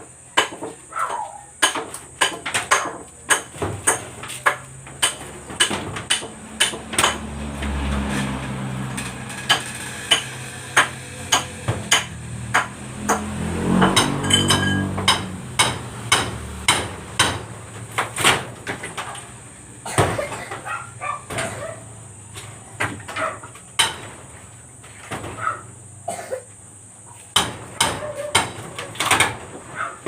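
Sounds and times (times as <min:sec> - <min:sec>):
hammer striking: 0:01.6 - 0:07.7, 0:09.0 - 0:19.1, 0:23.8 - 0:24.2, 0:27.3 - 0:28.6.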